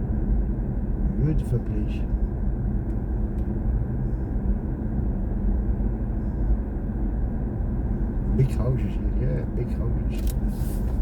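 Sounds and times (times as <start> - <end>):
car road and tyre noise: 0.0 - 11.0.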